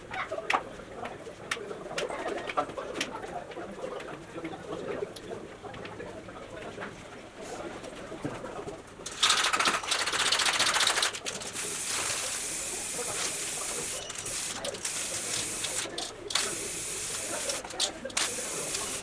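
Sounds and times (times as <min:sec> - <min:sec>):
spraying hiss: 0:11.6 - 0:17.6, 0:18.2 - 0:19.0.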